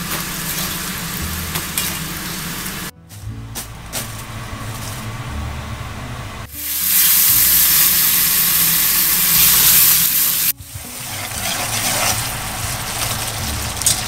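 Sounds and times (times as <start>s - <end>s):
faint background music: 0.6s - 8.2s, 10.5s - 14.0s
food sizzling in hot oil: 6.5s - 13.6s.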